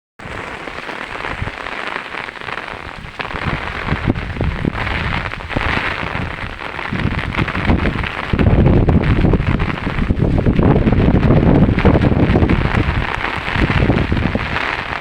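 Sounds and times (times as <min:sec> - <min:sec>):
heavy rain falling: 0:00.2 - 0:15.0
low rumble: 0:03.9 - 0:14.6.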